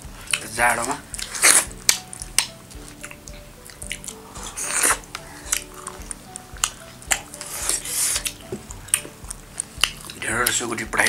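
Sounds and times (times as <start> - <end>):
soft background music: 0.0 - 11.0
wet chewing: 0.0 - 11.0
mouth clicks: 0.2 - 10.6.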